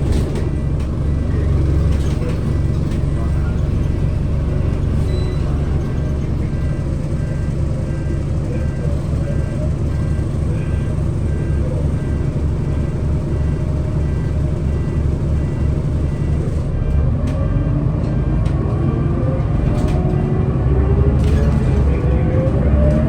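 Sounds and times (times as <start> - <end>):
bus engine running: 0.0 - 23.0.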